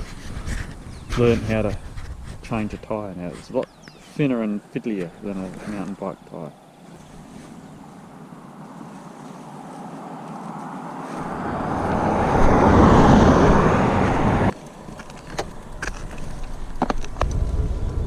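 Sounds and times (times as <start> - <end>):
car passing: 6.8 - 15.9.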